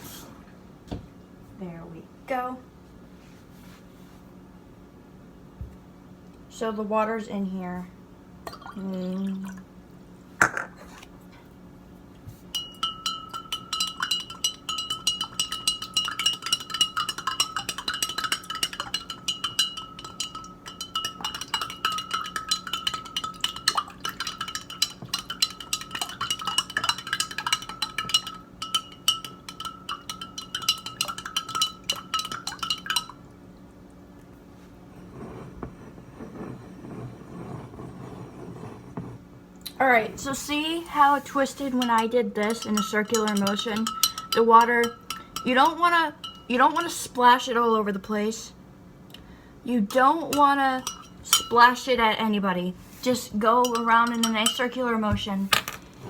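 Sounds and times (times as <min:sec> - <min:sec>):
glass clink: 0:12.5 - 0:33.2, 0:41.8 - 0:45.5, 0:46.2 - 0:46.5, 0:50.8 - 0:51.6
spoon stirring in ringing glass: 0:12.5 - 0:33.2, 0:41.6 - 0:47.0, 0:49.9 - 0:51.9, 0:53.4 - 0:54.9.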